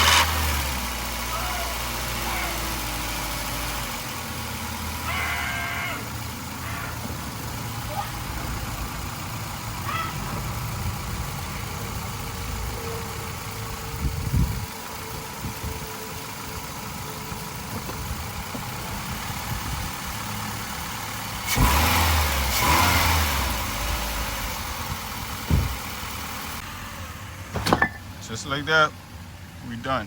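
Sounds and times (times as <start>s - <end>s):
car engine idling: 0.0s - 30.0s
short thump: 25.4s - 25.9s, 27.5s - 28.0s.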